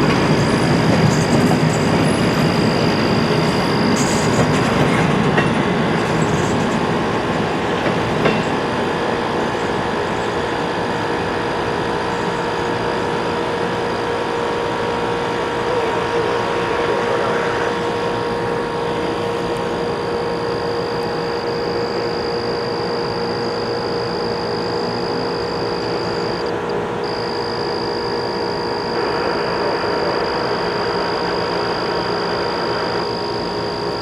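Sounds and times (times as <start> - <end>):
train wheels rumbling on rail: 0.0 - 22.2.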